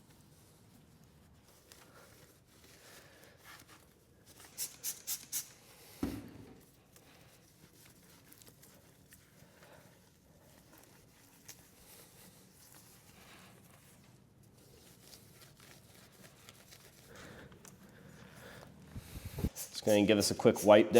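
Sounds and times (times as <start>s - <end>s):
rubbing and handling noise: 0.0s - 20.9s
spray bottle squirts: 4.5s - 6.2s, 19.3s - 20.9s.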